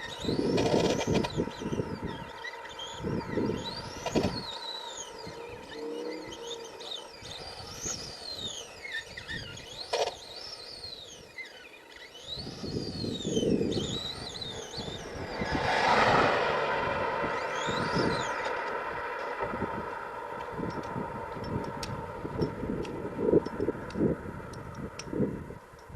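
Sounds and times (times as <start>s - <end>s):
low rumbling: 0.0s - 8.4s
electric motor whining: 0.0s - 25.6s.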